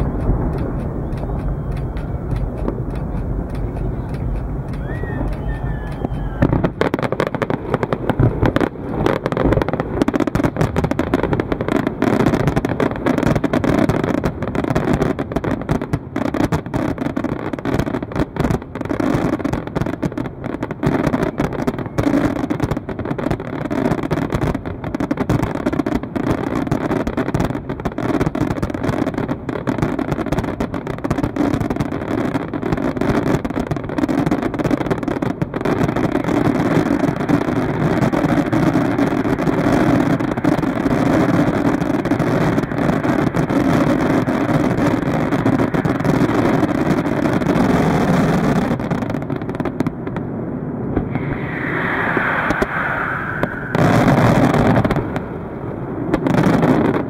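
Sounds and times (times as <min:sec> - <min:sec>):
fireworks bursts and crackling: 0:00.0 - 0:57.0.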